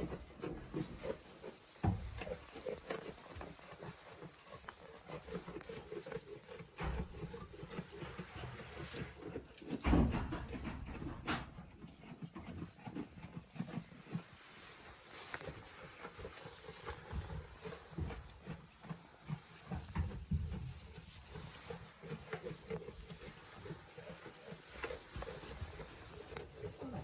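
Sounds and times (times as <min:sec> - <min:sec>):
goats making low sounds: 0:21.6 - 0:27.0.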